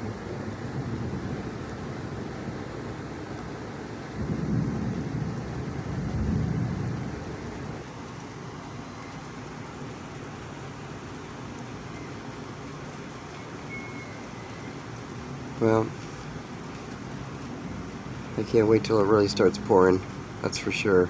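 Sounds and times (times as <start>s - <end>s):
thunder rumbling: 0.0s - 8.2s
steady outdoor hiss: 0.0s - 21.0s.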